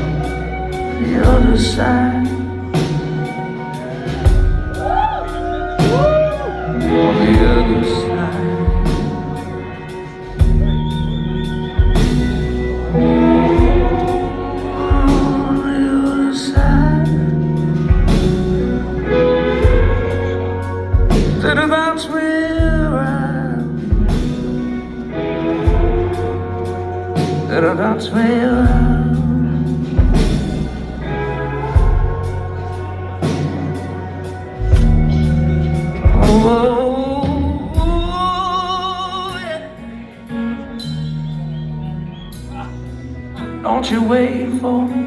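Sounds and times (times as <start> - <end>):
person singing with sliding pitch: 0.0 - 42.1
live rock band playing: 0.0 - 45.0
drum hits: 13.6 - 14.3, 34.6 - 36.7.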